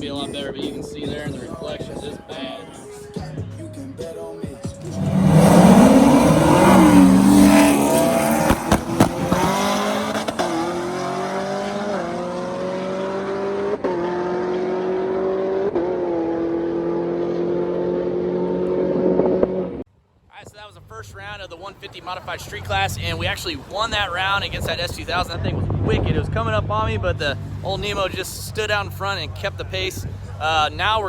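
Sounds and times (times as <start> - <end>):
car engine at full throttle: 4.8 - 19.8.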